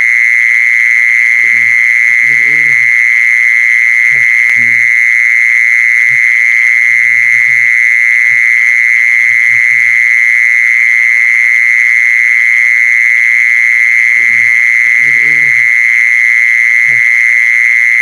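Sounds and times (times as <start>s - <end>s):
high-pitched animal trill: 1.4s - 3.0s, 14.2s - 15.7s.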